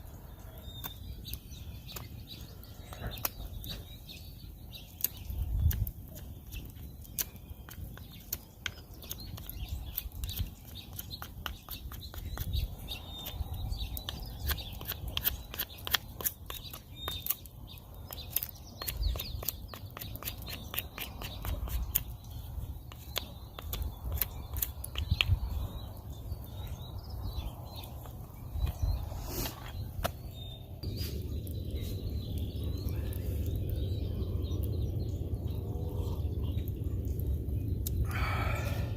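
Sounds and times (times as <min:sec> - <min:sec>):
small birds chirping: 0:00.0 - 0:38.9
sharp clicks and crackles: 0:00.6 - 0:02.2, 0:04.8 - 0:26.6, 0:36.2 - 0:38.0
low rumble: 0:30.7 - 0:38.9.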